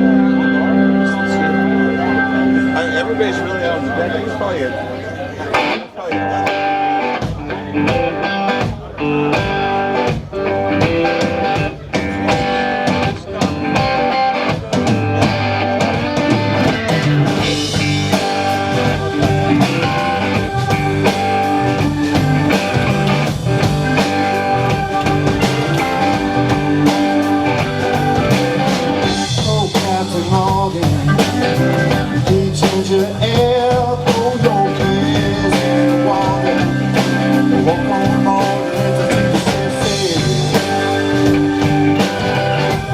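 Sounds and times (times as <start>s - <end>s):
guitars: 0.0s - 42.9s
live rock band playing: 0.0s - 42.9s
drum kit beat: 5.5s - 42.9s.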